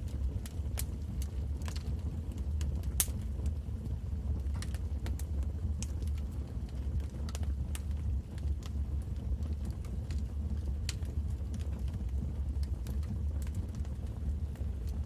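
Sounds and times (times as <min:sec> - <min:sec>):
wood fire burning in a fireplace: 0:00.0 - 0:15.0.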